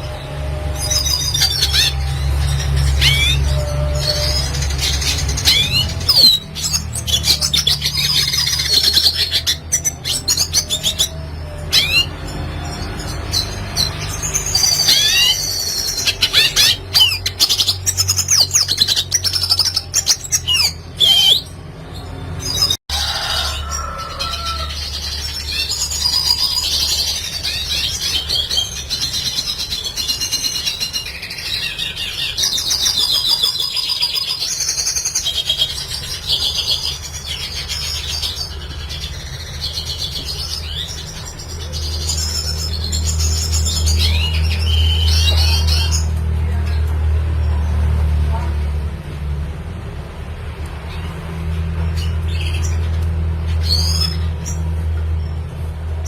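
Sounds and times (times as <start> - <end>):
bird twittering song: 0.0 - 22.8, 23.6 - 47.6, 50.7 - 55.6.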